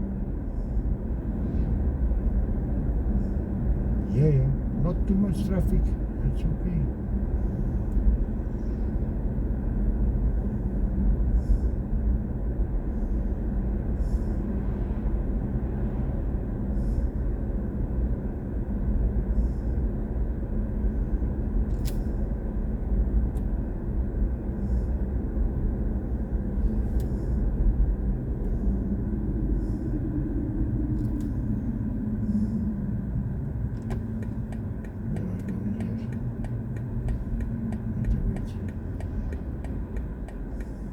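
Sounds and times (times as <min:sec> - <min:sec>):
road and tyre rumble: 0:00.0 - 0:40.9
faint high ticks: 0:33.8 - 0:40.8.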